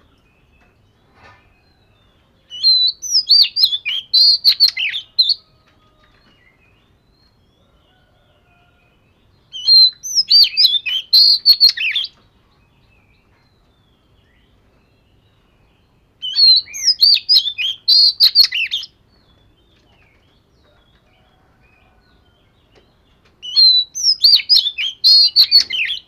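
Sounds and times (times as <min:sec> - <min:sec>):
bird singing varied whistles: 0:02.5 - 0:05.4, 0:09.5 - 0:12.1, 0:16.2 - 0:19.0, 0:23.4 - 0:26.0.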